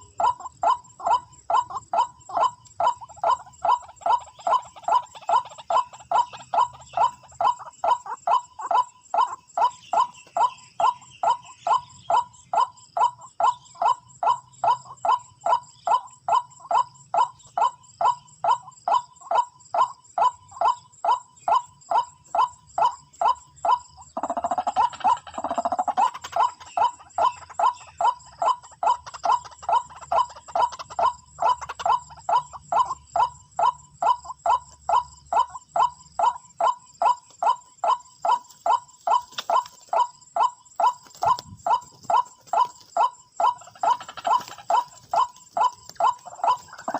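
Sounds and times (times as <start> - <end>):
waterhen calling: 19.8 - 34.7, 35.3 - 46.9.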